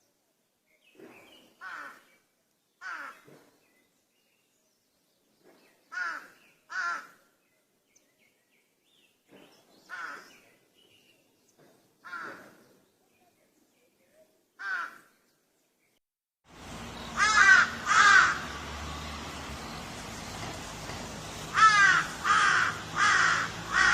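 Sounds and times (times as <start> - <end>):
crow cawing: 1.6 - 2.0, 2.8 - 3.2, 5.9 - 7.2, 9.9 - 10.2, 12.0 - 12.4, 14.6 - 15.0, 17.2 - 18.6, 21.5 - 23.9.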